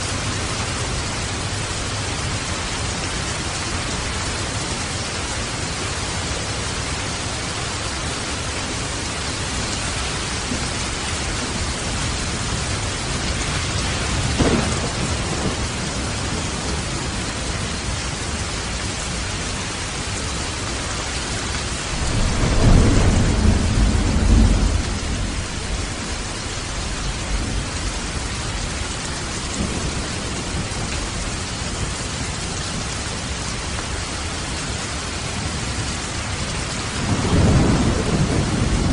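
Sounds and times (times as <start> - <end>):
steady rain: 0.0 - 38.9
thunder: 10.2 - 17.1, 21.9 - 28.2, 36.8 - 38.9.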